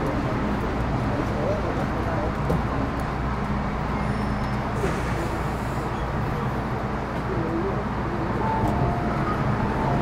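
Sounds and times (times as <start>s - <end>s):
train interior rumble: 0.0s - 10.0s.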